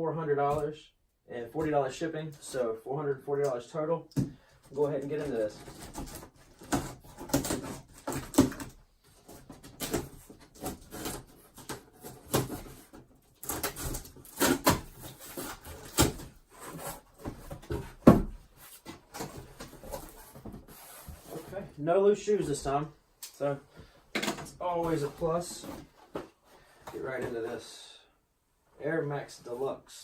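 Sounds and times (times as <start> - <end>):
cardboard box scrapes and rustles: 9.3 - 21.8.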